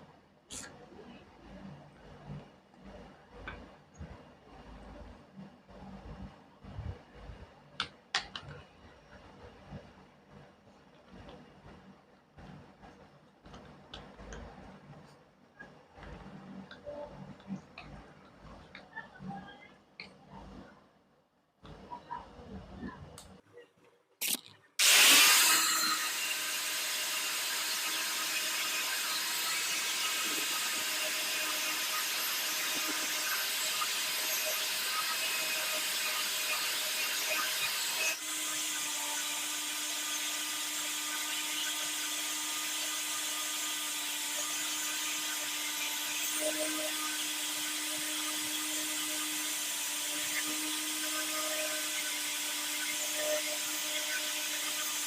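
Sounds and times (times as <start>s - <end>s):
power tool whining: 24.8s - 55.0s.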